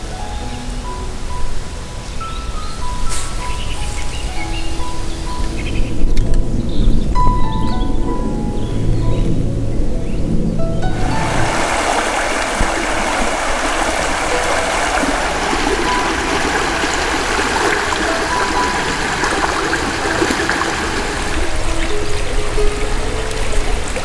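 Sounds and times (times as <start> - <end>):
stream flowing: 0.0 - 24.0.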